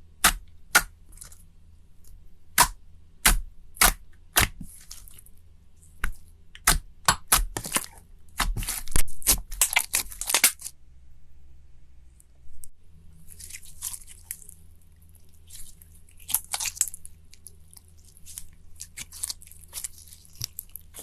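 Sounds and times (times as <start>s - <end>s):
crunchy slime crackling: 2.6s - 10.7s, 13.2s - 21.0s.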